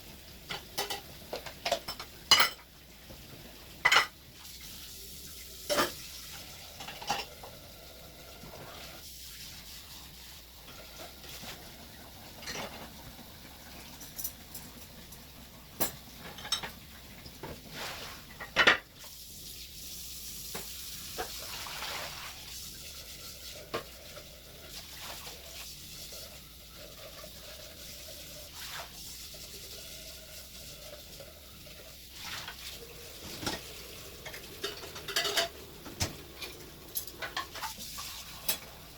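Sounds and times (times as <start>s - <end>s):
water running hiss: 0.0s - 38.9s
dishes and utensils clinking: 0.5s - 2.7s, 3.8s - 4.2s, 5.6s - 6.1s, 6.7s - 7.5s, 12.4s - 12.9s, 13.7s - 17.6s, 18.3s - 18.9s, 33.2s - 38.7s
dishes clattering: 0.5s - 2.7s, 3.8s - 4.2s, 5.7s - 6.1s, 6.7s - 7.5s, 12.4s - 13.0s, 13.8s - 17.6s, 18.3s - 18.9s, 33.2s - 38.7s.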